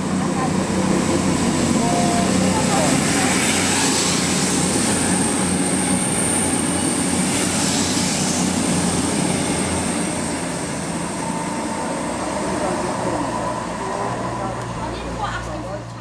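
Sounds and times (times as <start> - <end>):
train passing at speed: 0.0 - 16.0.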